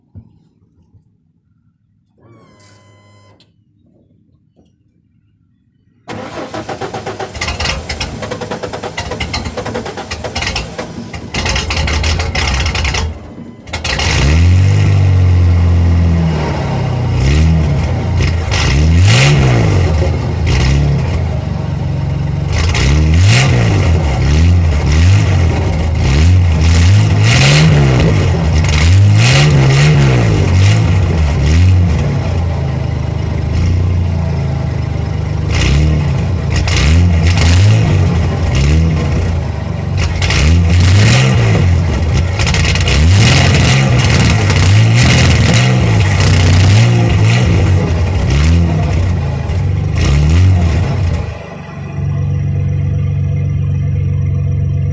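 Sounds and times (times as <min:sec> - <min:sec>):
engine cranking: 0:06.1 - 0:16.1, 0:35.4 - 0:54.9
loud engine revving: 0:06.1 - 0:54.9.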